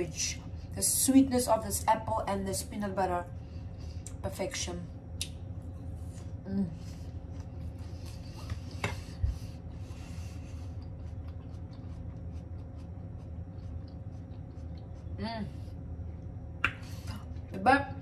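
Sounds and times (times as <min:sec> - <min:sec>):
low hum: 0:00.0 - 0:18.0
person chewing crunchy food: 0:09.7 - 0:15.2.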